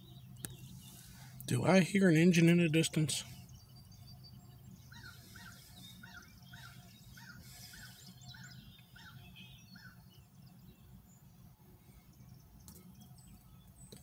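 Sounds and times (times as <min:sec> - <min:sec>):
faint bird chirps: 0:03.0 - 0:14.0.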